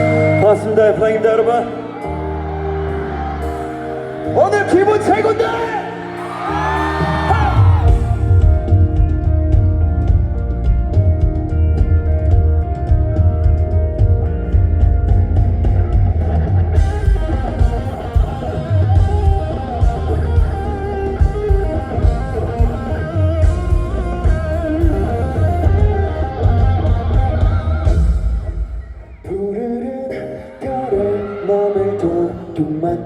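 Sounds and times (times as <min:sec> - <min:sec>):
bass: 0:00.0 - 0:29.8
electric guitar: 0:00.0 - 0:33.0
drums: 0:06.0 - 0:31.2.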